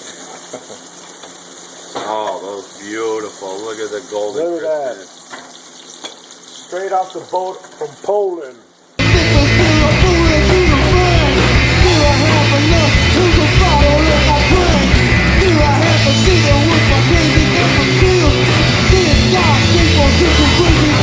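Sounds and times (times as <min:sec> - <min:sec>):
loud rock music: 0:09.0 - 0:21.0
person singing: 0:09.0 - 0:21.0.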